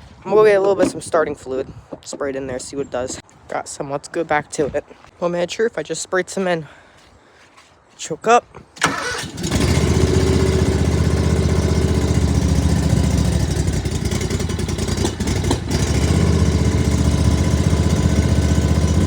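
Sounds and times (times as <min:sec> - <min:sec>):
mower engine running: 0:08.8 - 0:19.0.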